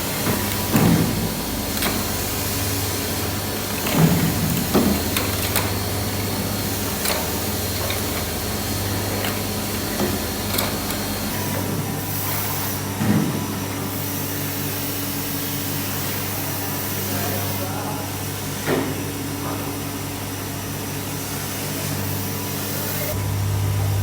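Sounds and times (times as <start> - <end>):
machine humming: 0.0 - 12.2, 22.6 - 24.0.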